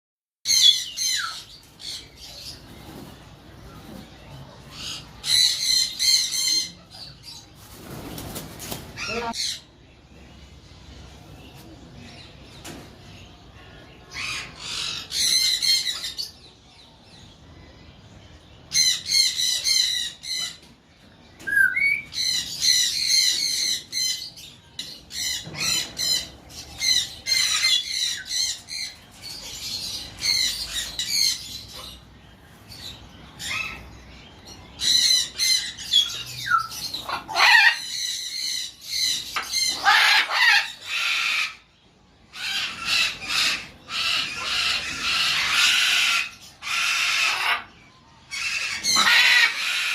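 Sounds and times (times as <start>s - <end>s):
macaw screeching: 48.3s - 49.9s.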